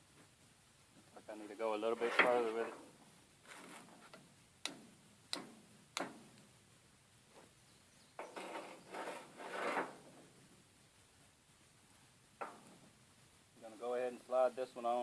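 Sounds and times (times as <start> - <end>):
metal parts rubbing and scraping: 8.2 - 10.1.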